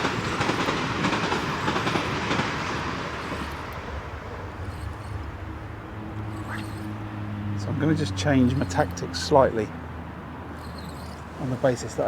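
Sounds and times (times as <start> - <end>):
train wheels clattering over rails: 0.0 - 6.9.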